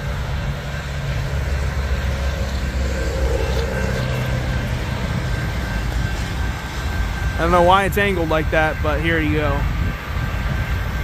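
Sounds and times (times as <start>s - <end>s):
crossing warning bell: 0.0s - 8.8s
freight train rumble: 0.0s - 11.0s.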